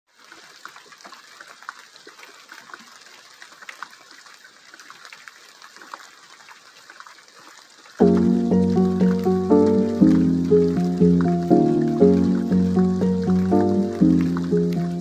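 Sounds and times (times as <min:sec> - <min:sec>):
rain falling: 0:06.8 - 0:15.0
drops ticking: 0:08.0 - 0:15.0.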